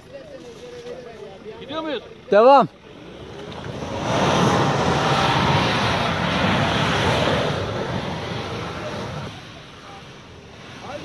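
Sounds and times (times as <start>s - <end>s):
vehicle engine revving hard: 2.9s - 9.4s.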